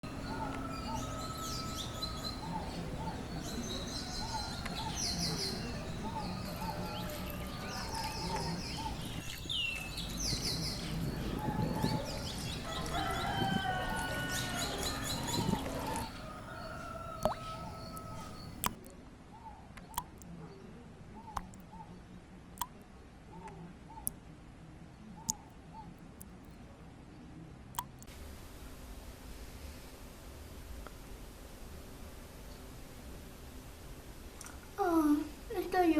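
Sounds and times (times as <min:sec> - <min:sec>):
birds chirping and calling: 0:00.1 - 0:18.8.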